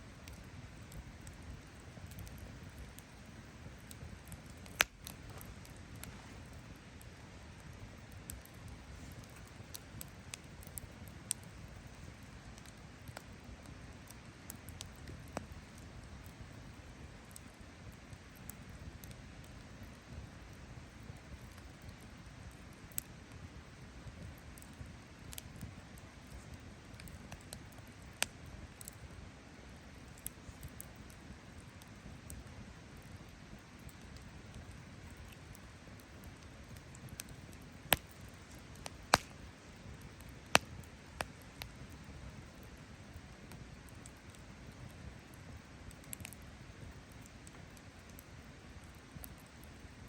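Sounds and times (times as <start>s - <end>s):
campfire crackling: 0.0s - 50.0s
low steady rush: 0.0s - 50.0s
sharp pop of fire: 38.8s - 39.4s.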